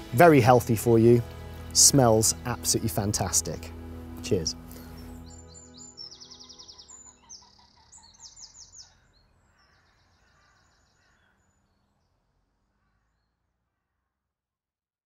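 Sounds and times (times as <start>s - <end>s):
low outdoor background noise: 0.0s - 14.2s
birds singing trills: 1.0s - 12.2s.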